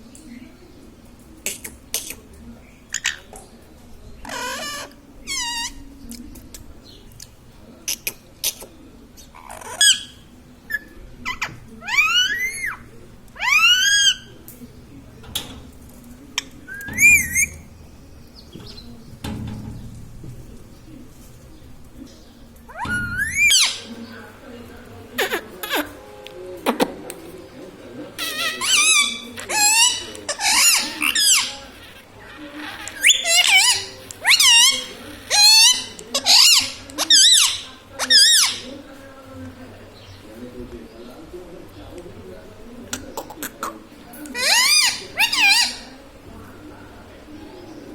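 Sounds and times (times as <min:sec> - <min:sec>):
parrot squawking: 0:04.2 - 0:05.8, 0:09.4 - 0:14.3, 0:16.7 - 0:17.7, 0:22.7 - 0:23.9, 0:28.2 - 0:38.6, 0:44.3 - 0:45.9.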